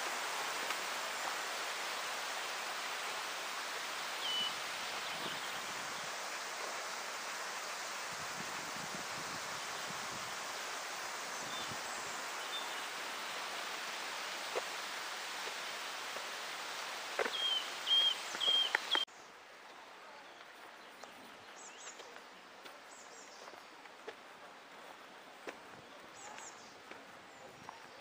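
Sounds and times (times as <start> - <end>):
rustling hiss: 0.0 - 28.0
bird chirping: 4.2 - 5.6, 17.2 - 19.1.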